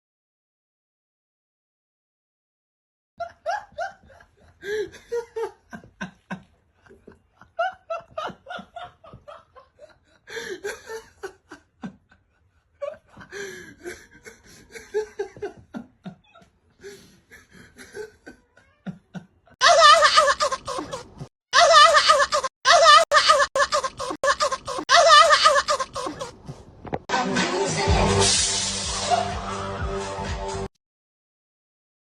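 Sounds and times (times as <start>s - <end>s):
person laughing hard: 3.2s - 26.4s.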